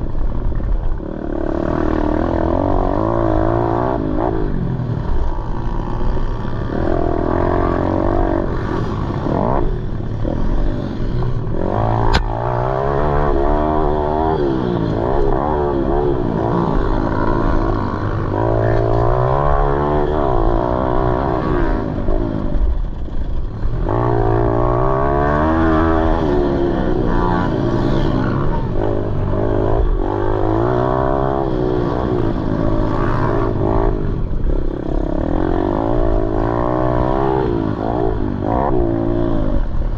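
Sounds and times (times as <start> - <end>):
motorbike engine racing: 0.0 - 39.9
sharp click: 12.1 - 12.3.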